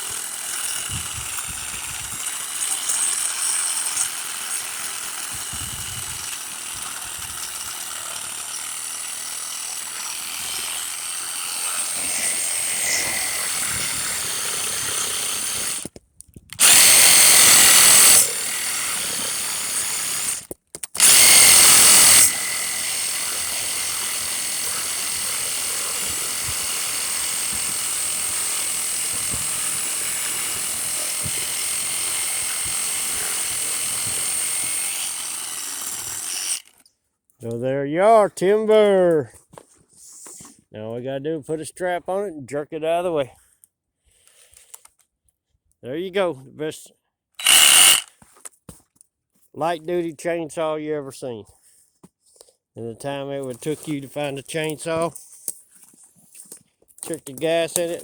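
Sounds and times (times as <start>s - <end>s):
reciprocating saw cutting wood: 0.0s - 15.9s, 16.6s - 36.8s, 47.4s - 48.1s, 57.1s - 58.0s.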